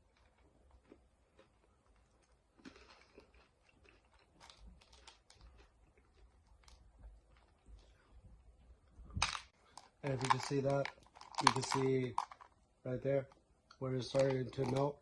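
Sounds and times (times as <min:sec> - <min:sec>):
chopsticks clicking on hard candies: 0:09.2 - 0:12.5, 0:14.1 - 0:14.9.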